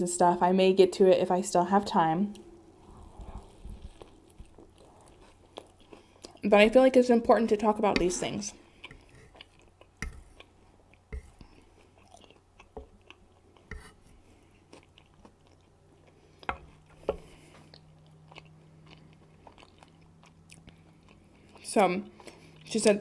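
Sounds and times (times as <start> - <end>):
wet chewing clicks and smacks: 3.4 - 6.5, 8.7 - 13.7, 14.6 - 22.7.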